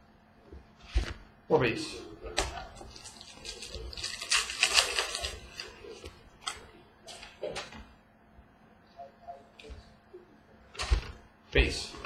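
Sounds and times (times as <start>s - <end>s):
card packs rustling: 2.6s - 7.7s.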